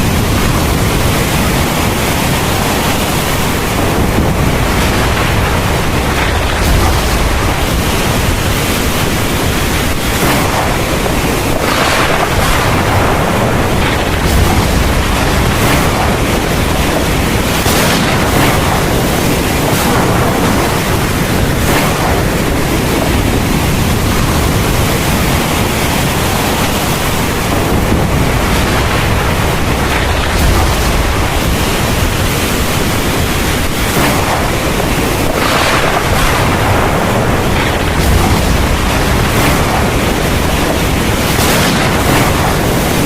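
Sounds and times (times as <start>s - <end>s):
deep thunder rumble: 0.0s - 43.0s
heavy rain pouring: 0.0s - 43.0s.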